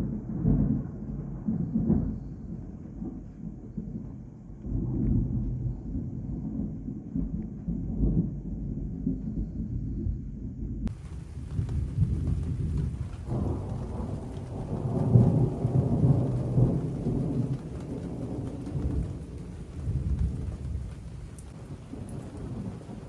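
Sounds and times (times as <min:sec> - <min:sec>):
rain falling: 0:10.9 - 0:23.0
thunder rumbling: 0:10.9 - 0:23.0.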